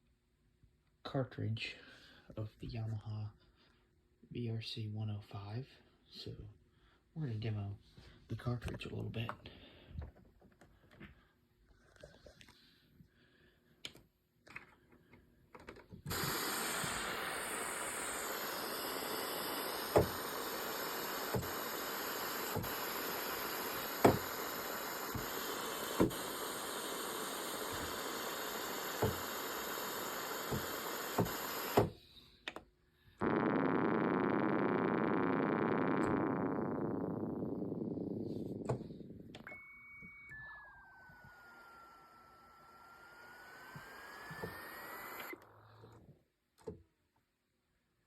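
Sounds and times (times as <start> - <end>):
hissing synthesizer patch: 16.1 - 31.8, 33.2 - 39.0.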